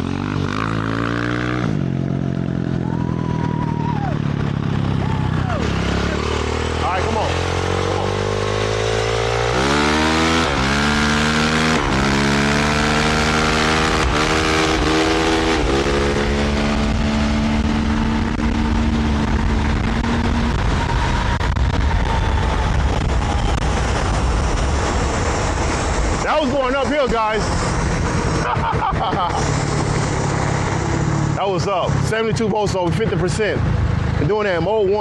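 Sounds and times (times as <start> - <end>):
dirt bike engine accelerating: 0.0 - 35.0
wind noise: 7.4 - 32.4.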